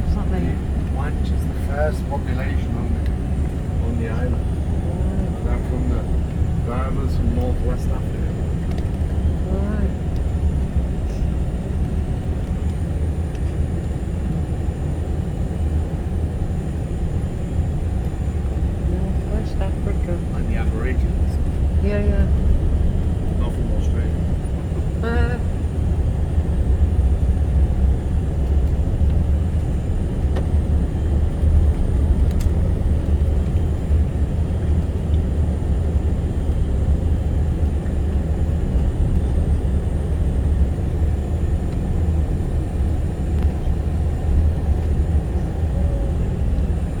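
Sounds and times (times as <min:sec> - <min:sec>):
vehicle engine and road noise: 0:00.0 - 0:47.0.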